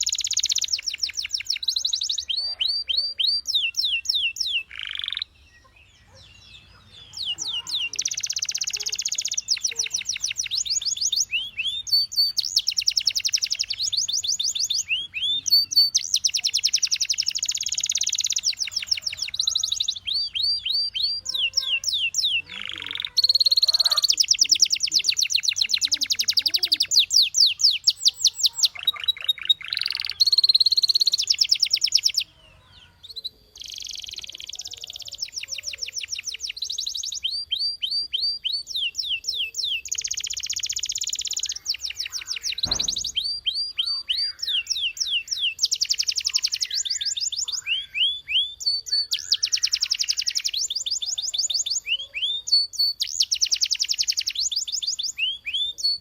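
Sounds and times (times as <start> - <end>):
canary singing trills: 0.0 - 56.0
low thump: 42.6 - 43.2.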